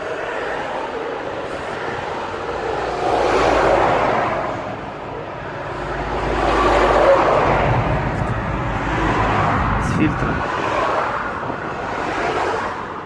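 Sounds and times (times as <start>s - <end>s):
vehicles passing: 0.1s - 13.0s.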